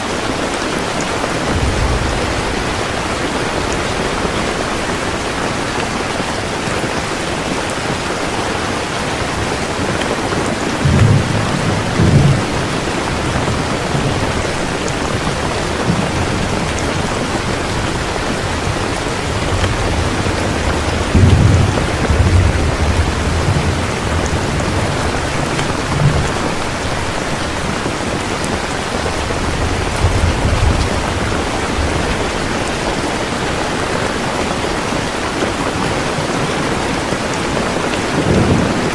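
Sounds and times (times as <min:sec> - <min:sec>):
heavy rain pouring: 0:00.0 - 0:38.9
thunder rumbling: 0:00.0 - 0:38.9.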